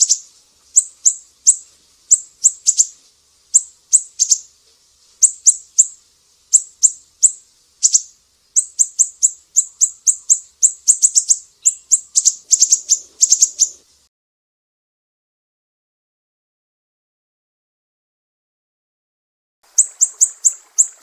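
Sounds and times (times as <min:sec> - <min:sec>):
bird song of sharp high chips: 0:00.0 - 0:04.5, 0:05.2 - 0:13.8, 0:19.7 - 0:21.0.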